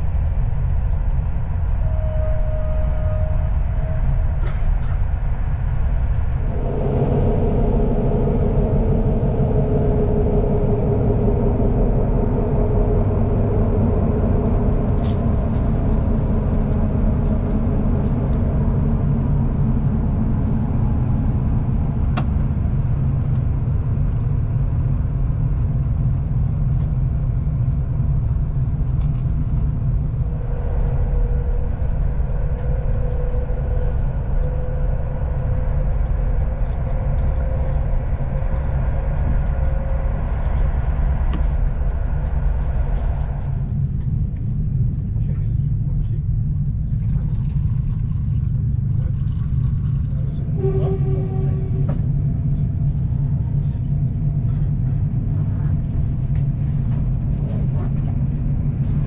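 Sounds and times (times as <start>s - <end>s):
train wheels rumbling on rails: 0.0s - 59.0s
faint rising tone: 6.2s - 16.4s.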